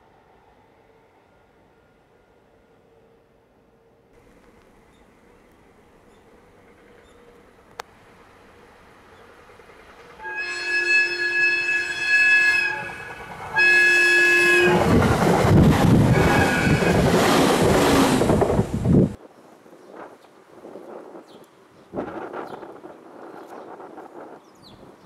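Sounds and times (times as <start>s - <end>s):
train wheel and rail rumble: 0.0s - 25.0s
train horn: 10.2s - 15.0s, 16.1s - 17.0s.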